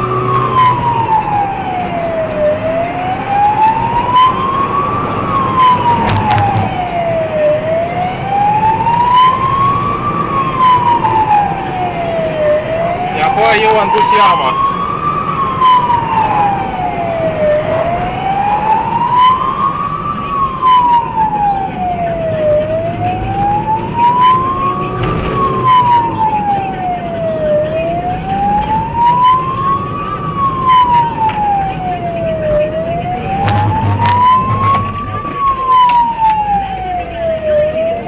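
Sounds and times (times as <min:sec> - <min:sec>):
emergency siren wailing: 0:00.0 - 0:38.0
low rumble: 0:33.3 - 0:35.3.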